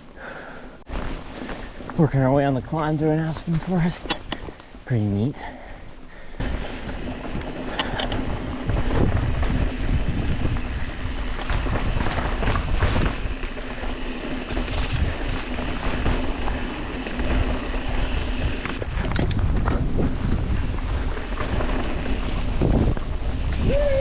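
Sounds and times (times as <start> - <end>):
wind buffeting microphone: 5.9 - 24.0
bike rumble and knocks: 6.4 - 23.9.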